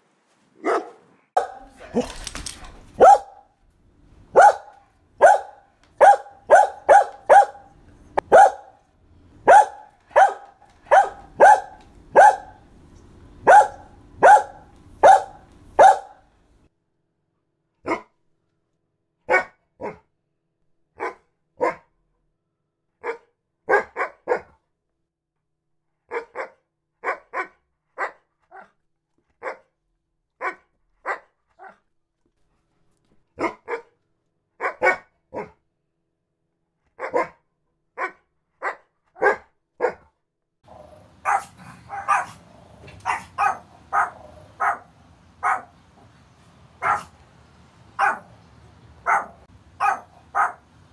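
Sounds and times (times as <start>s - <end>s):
dogs barking: 0.6s - 2.1s, 3.0s - 3.5s, 4.3s - 8.8s, 9.4s - 12.6s, 13.4s - 16.2s, 19.3s - 20.0s, 21.0s - 21.8s, 23.0s - 24.5s, 26.1s - 28.2s, 29.4s - 29.6s, 33.4s - 33.9s, 34.6s - 35.6s, 37.0s - 37.4s, 38.0s - 40.0s, 40.9s - 45.8s, 46.8s - 47.2s, 48.0s - 48.4s, 49.0s - 50.7s.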